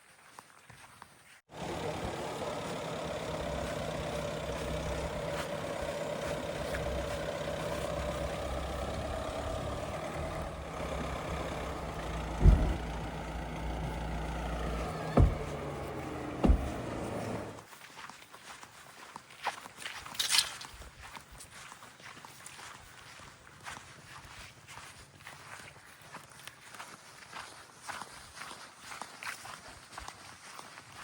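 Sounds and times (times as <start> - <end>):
heavy diesel engine running: 1.5 - 17.6
sharp low thumps: 9.8 - 17.5.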